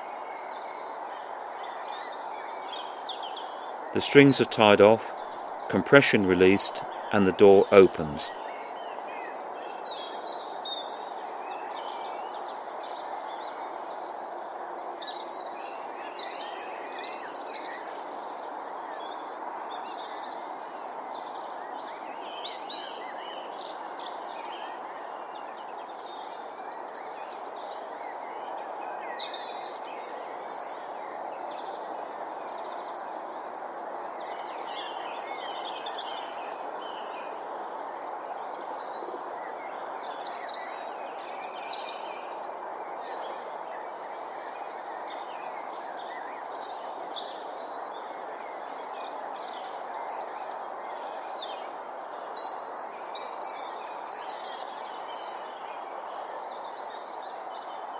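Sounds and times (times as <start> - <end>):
outdoor ambient hiss: 0.0 - 57.9
birds chirping: 5.7 - 8.3.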